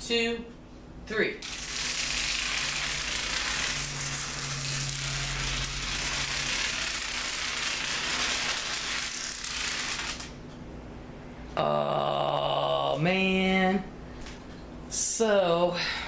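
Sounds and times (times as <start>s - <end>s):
dominoes toppling: 1.4s - 10.3s.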